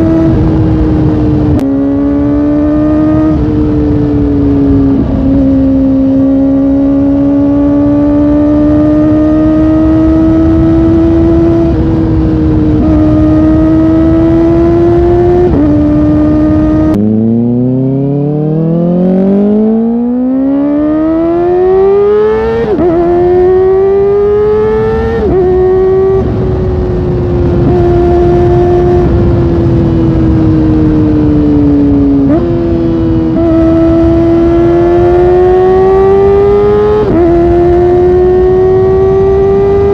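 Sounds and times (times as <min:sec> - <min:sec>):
motorcycle engine revving: 0:00.0 - 0:39.9
wind rush: 0:22.3 - 0:39.9.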